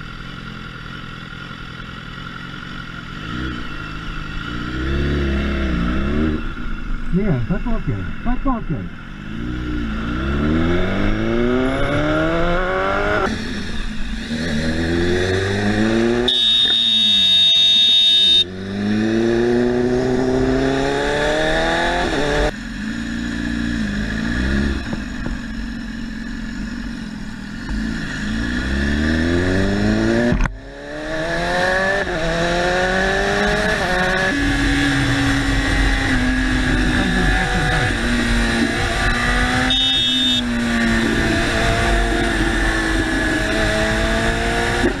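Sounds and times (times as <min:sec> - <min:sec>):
motorcycle engine accelerating: 0:00.0 - 0:45.0
high steady beep: 0:16.1 - 0:18.5, 0:39.6 - 0:40.5.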